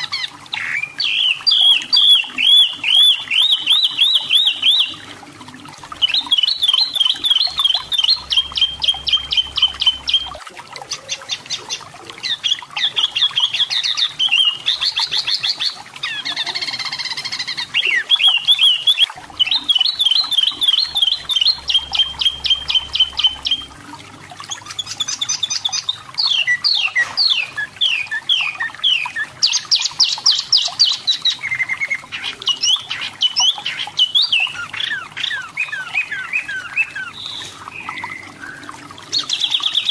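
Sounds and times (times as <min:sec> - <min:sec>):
bird singing high trills: 0:06.0 - 0:10.4, 0:16.1 - 0:23.7.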